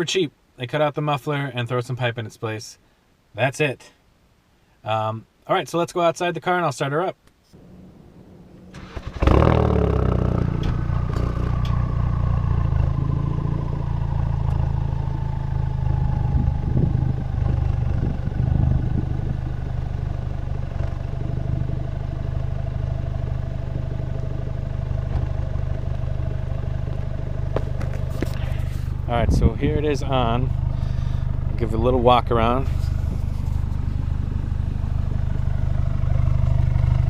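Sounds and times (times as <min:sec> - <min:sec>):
car engine idling: 0:07.6 - 0:37.0.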